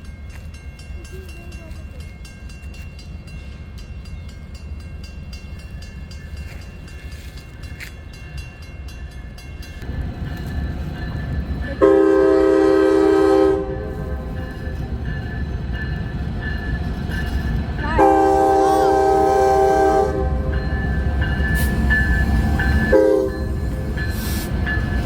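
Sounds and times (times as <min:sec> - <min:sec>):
crossing warning bell ringing: 0:00.0 - 0:25.0
freight train rumble: 0:00.0 - 0:25.0
train air horn blast: 0:11.8 - 0:14.4, 0:17.9 - 0:20.6, 0:22.9 - 0:23.6.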